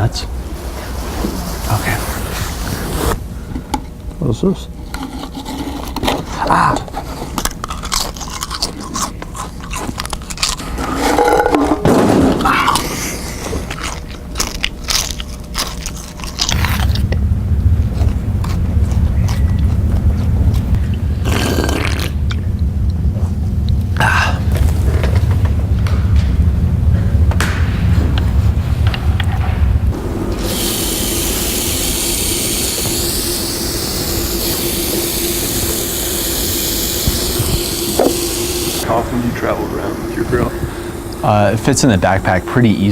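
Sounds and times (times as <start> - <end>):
low steady hum: 0.0 - 42.9
crunching and chewing snack: 5.6 - 11.0, 12.6 - 17.2, 17.8 - 23.0
ham sizzling: 30.0 - 38.9.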